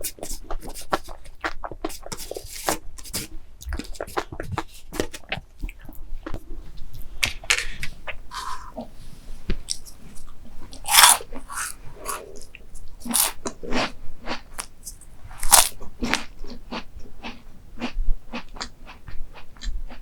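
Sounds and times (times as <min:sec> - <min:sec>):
crunchy dessert crunching: 0:09.7 - 0:20.0.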